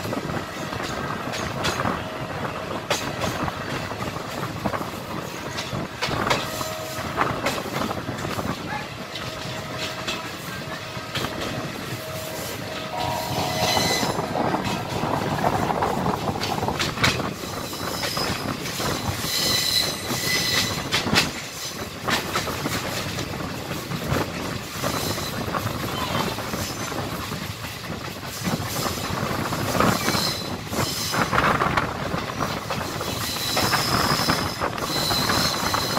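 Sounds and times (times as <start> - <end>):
train wheels rumbling on rail: 0.0 - 35.9
high-pitched wheel squeal: 12.0 - 14.8, 19.2 - 20.8, 33.2 - 35.9.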